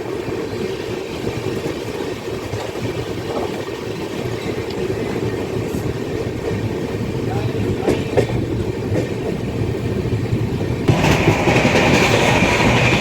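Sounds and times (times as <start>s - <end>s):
passenger train rumbling: 0.0s - 13.0s.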